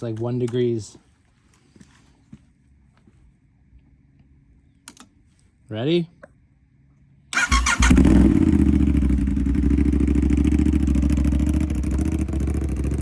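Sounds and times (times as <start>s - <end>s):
starter cranking: 7.4s - 8.4s
motorcycle engine idling: 7.4s - 13.0s.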